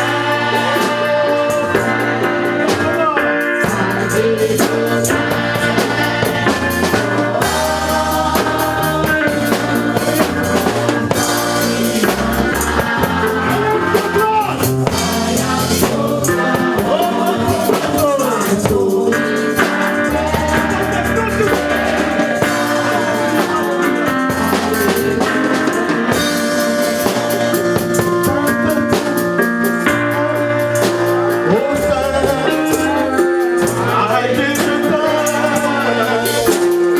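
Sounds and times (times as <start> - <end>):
stepping bass line: 0.0 - 28.5
drum kit: 0.0 - 36.9
voices singing a melody: 0.0 - 36.9
worship band playing: 0.0 - 36.9.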